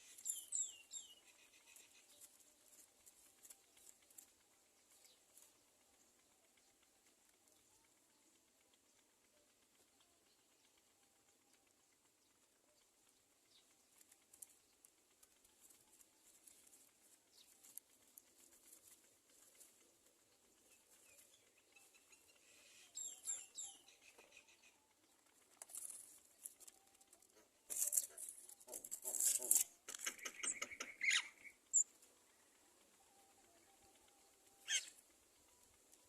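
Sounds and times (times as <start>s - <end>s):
chick squeaking: 28.7s - 31.9s, 34.6s - 35.0s.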